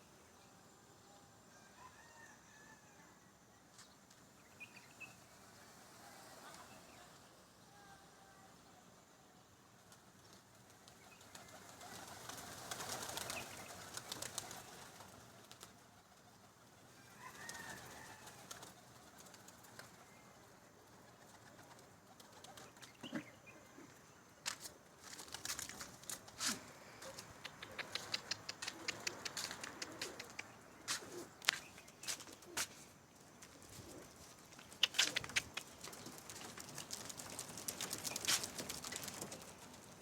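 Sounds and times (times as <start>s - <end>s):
pigeon wings flapping: 9.8s - 16.6s, 17.2s - 20.1s, 21.1s - 22.9s, 25.0s - 26.4s, 27.1s - 30.4s, 33.5s - 40.0s.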